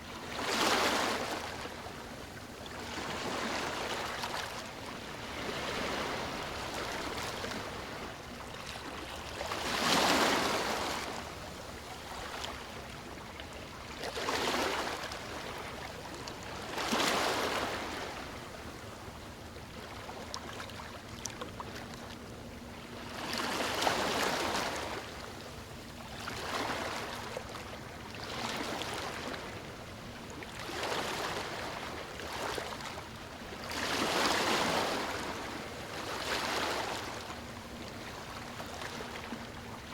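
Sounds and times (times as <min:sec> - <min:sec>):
sea waves breaking: 0:02.9 - 0:11.2, 0:22.8 - 0:29.8, 0:30.5 - 0:39.9.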